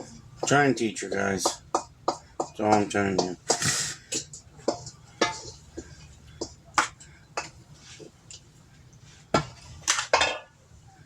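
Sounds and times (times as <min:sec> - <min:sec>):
kitchenware knocking and clinking: 0:09.4 - 0:10.6.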